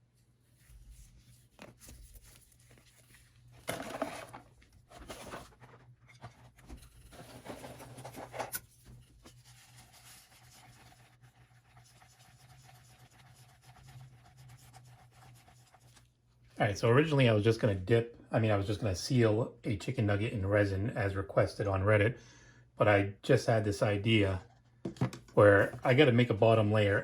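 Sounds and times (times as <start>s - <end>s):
rustling and scraping handling: 0.0s - 16.7s, 24.1s - 27.0s.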